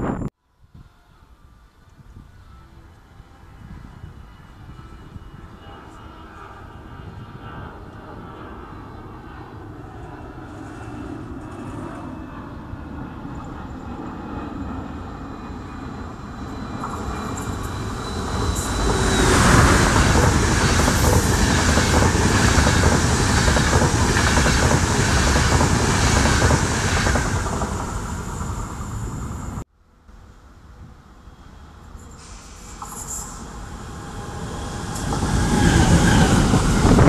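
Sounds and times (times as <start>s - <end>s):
electric locomotive passing: 0.8s - 29.6s, 30.2s - 37.0s
train wheels clickety-clack: 16.8s - 28.5s.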